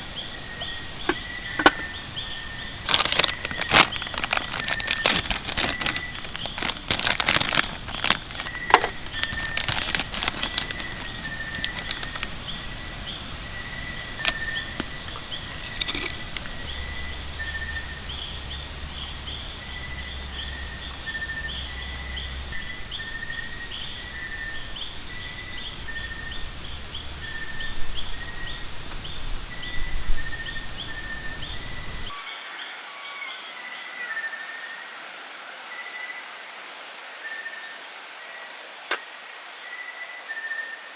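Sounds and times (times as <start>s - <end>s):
high chirping chorus: 0.0s - 32.1s
sharp crackles and clicks: 2.7s - 12.5s, 14.0s - 17.1s.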